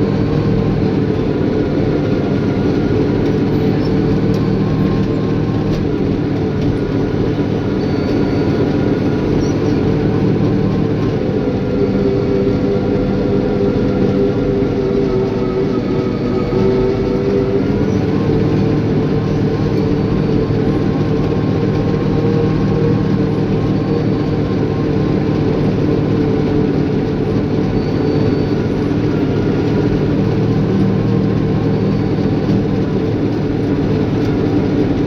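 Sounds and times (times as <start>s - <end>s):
bulldozer diesel engine running: 0.0s - 35.0s.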